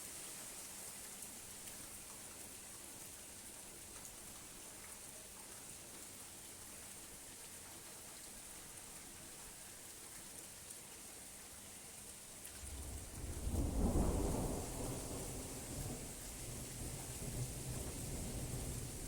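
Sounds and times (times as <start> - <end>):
rain falling: 0.0 - 19.0
thunder rumbling: 12.6 - 19.0.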